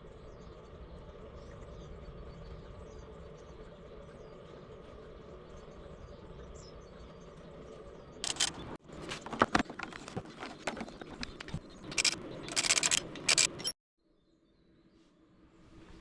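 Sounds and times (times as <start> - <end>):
shock absorber squeaking and creaking: 8.2 - 13.7
scraping bursts: 8.2 - 13.8.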